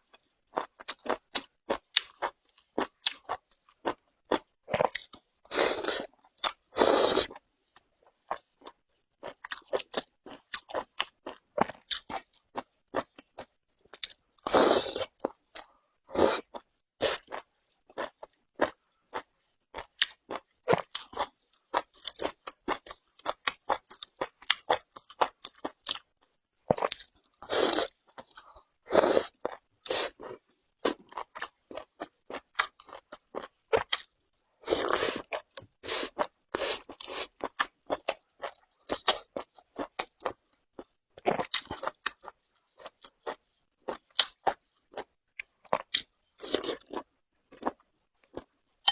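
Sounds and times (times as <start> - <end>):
crunchy chewing: 26.7 - 48.9.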